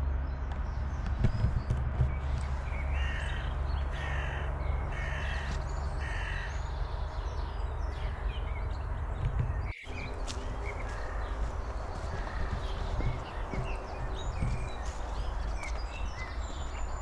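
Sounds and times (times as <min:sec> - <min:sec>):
steady low rumble: 0:00.0 - 0:17.0
crow cawing: 0:02.6 - 0:06.8, 0:10.6 - 0:13.8.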